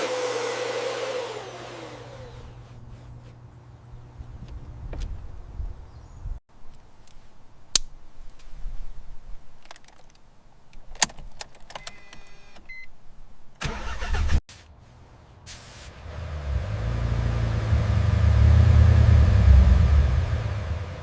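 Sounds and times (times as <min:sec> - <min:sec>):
engine cranking: 0:13.6 - 0:14.3, 0:15.9 - 0:21.0
engine running: 0:14.6 - 0:21.0.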